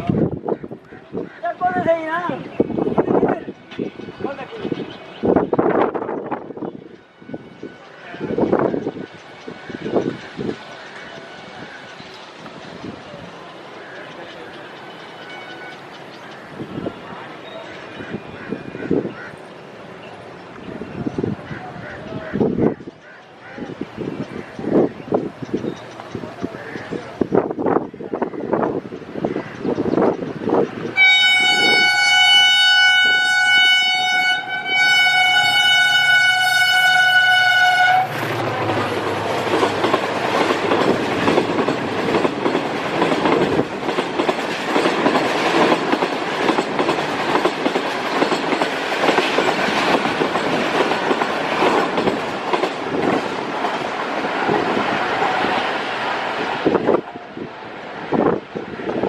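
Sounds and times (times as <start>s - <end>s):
train wheels clattering over rails: 22.4s - 32.0s, 35.2s - 57.0s
locomotive horn blast: 31.0s - 39.8s.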